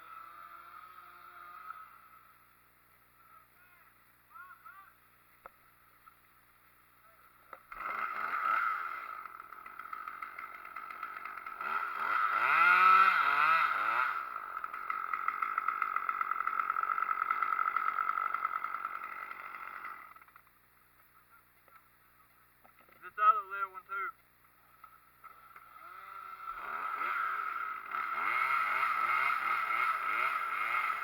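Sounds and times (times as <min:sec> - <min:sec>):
chainsaw running and cutting: 0:00.0 - 0:02.4, 0:07.5 - 0:20.5, 0:25.2 - 0:31.0.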